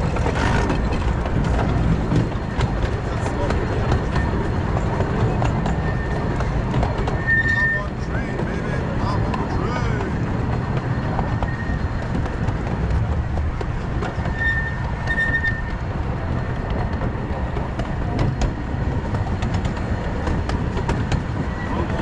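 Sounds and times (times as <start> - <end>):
train cars rumbling on track: 0.0 - 22.0
wheels clicking over rail joints: 0.0 - 22.0
high wheel squeals: 5.5 - 8.4, 11.2 - 12.0, 14.2 - 15.9.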